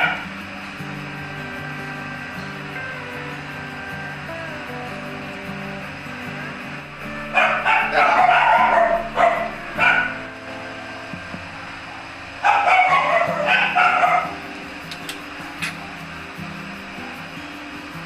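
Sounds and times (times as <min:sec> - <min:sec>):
dog barking and yipping: 0:00.0 - 0:00.3, 0:07.2 - 0:10.3, 0:11.9 - 0:14.4
background music: 0:00.0 - 0:18.0.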